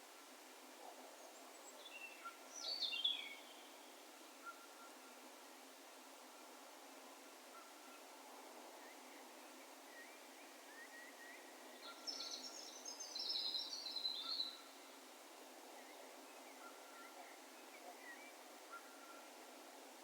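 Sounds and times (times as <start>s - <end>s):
open-air hiss: 0.0s - 20.0s
small bird twittering song: 1.8s - 3.7s, 9.9s - 14.8s.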